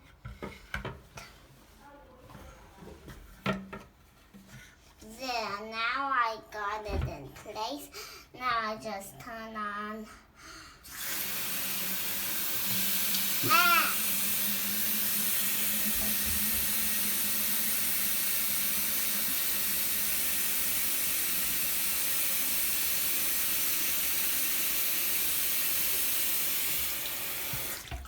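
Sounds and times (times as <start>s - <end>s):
tap water running into tank: 10.9s - 28.0s.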